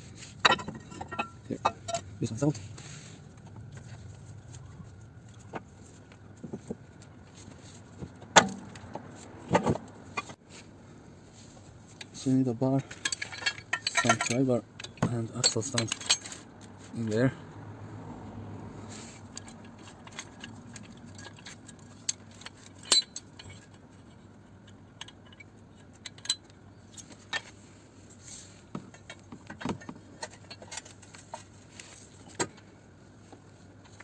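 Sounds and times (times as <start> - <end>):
hand tools clinking on metal: 0.4 - 2.6, 12.1 - 17.3.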